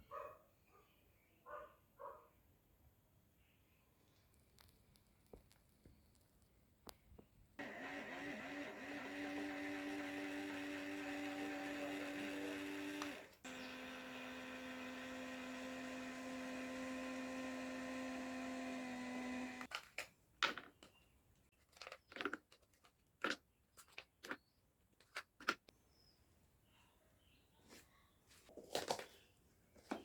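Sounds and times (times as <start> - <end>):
small fan motors humming: 7.6 - 19.7.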